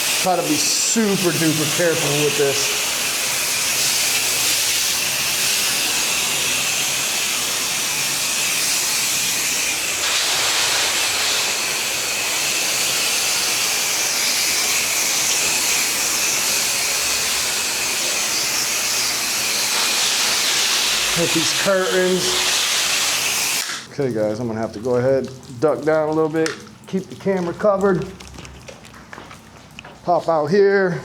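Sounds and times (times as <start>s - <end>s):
pressure washer engine running: 0.0s - 23.8s
pressure washer spray hissing: 0.0s - 23.9s.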